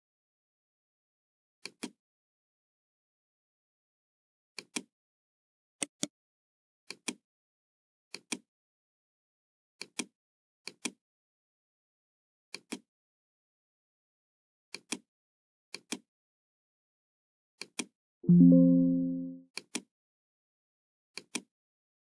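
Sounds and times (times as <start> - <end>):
computer mouse clicks: 1.6 - 2.0, 6.9 - 7.2, 8.1 - 8.4.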